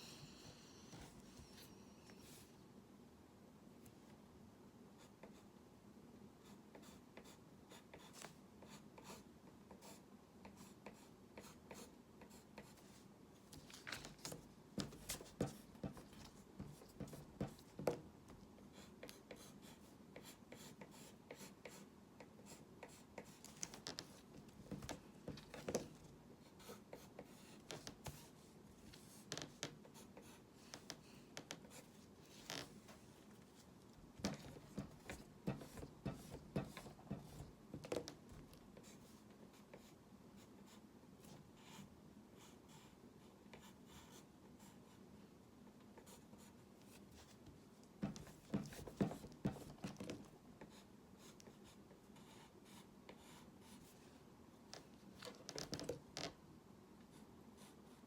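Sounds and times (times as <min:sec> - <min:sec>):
pen scratching and tapping on paper: 0:13.5 - 0:18.1, 0:22.8 - 0:26.0, 0:34.2 - 0:38.9, 0:48.0 - 0:51.6, 0:54.8 - 0:56.4.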